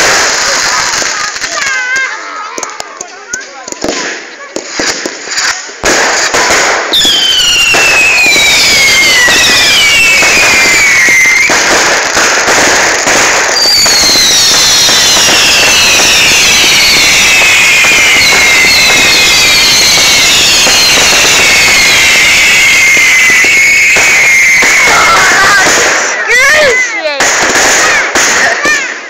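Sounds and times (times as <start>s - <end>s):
fireworks crackling: 0.0s - 29.0s
fireworks whistling: 0.0s - 29.0s.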